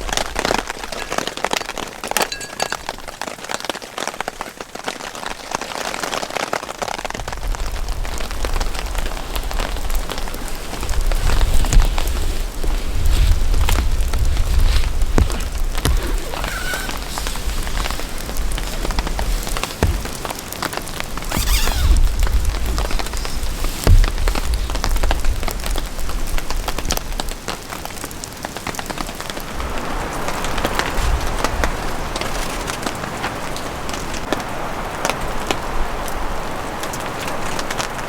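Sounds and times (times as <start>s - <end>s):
raindrops ticking on surface: 0.0s - 16.3s, 22.0s - 38.0s
wind buffeting microphone: 7.1s - 27.3s.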